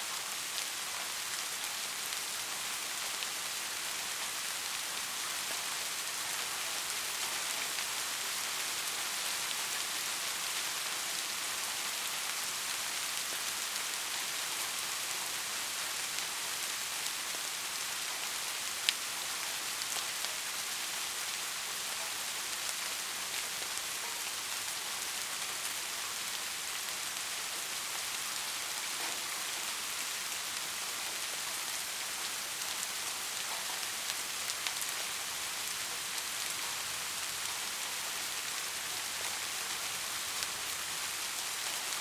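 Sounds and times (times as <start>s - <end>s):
steady rain: 0.0s - 42.0s.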